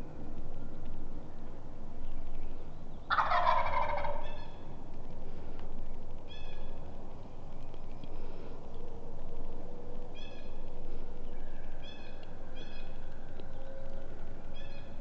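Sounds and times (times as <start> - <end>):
turkey gobbling: 3.1 - 4.4.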